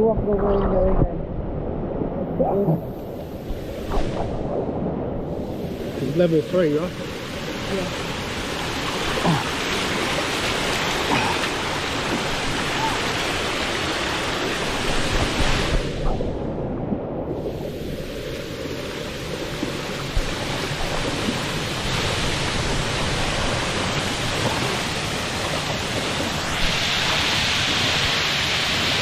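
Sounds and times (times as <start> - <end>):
waterfall rushing: 5.5 - 16.1, 17.5 - 29.0.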